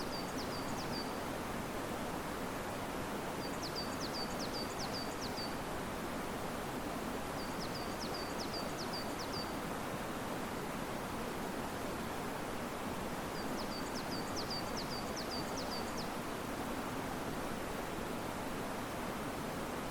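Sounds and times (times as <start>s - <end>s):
small bird singing: 0.0s - 1.2s
wind in trees: 0.0s - 19.9s.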